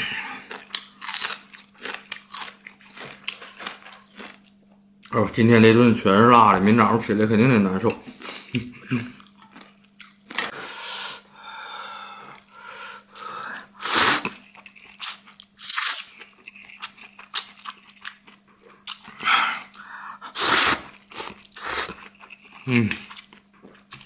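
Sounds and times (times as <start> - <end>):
person chewing and slurping noodles: 0.0 - 4.5, 12.3 - 24.0
faint steady hum: 0.0 - 24.0
sharp sucking sounds: 13.8 - 14.3, 20.3 - 22.0.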